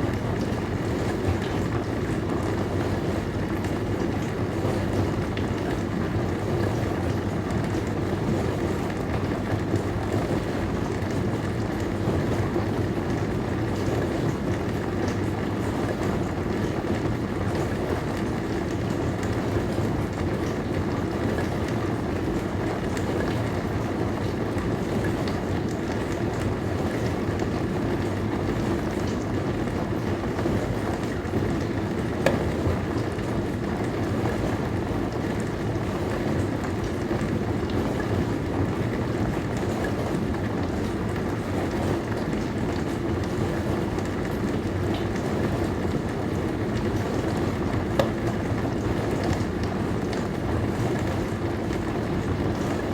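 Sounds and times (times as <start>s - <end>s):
low pump hum: 0.0s - 52.9s
dishwasher water spraying: 31.8s - 32.9s
dishwasher click: 32.2s - 32.8s, 47.9s - 48.3s.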